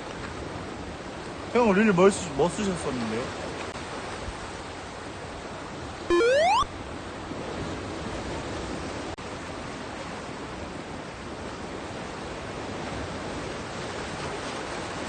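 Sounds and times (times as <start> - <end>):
wind: 0.0 - 15.0
rising electronic beep: 6.1 - 6.7.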